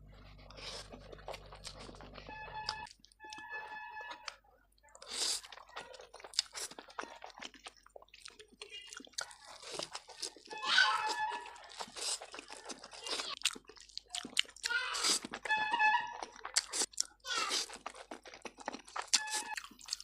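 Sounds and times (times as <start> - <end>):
chewing noodles: 0.0 - 20.0.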